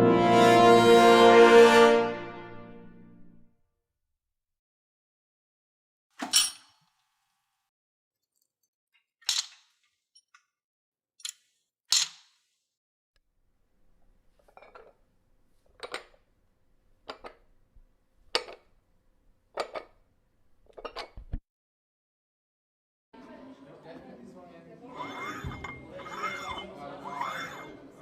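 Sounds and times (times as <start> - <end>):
metal gym weights clanking: 25.0 - 27.8.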